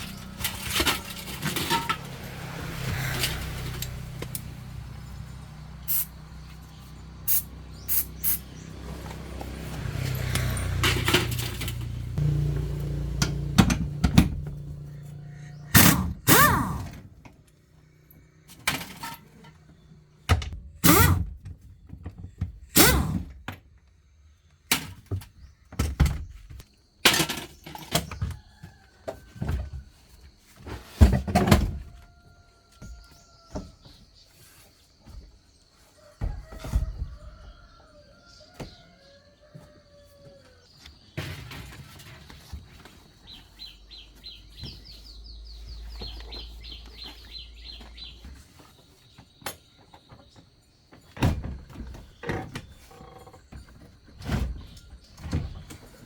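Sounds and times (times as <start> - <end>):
vehicle engine running: 0.0 - 17.0
metal clunks and knocks: 10.7 - 14.8.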